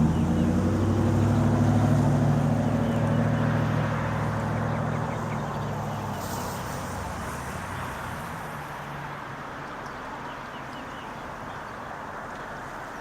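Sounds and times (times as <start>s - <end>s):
outdoor traffic noise: 0.0s - 13.0s
vehicle engine hum: 0.0s - 13.0s
small birds chirping: 9.7s - 13.0s.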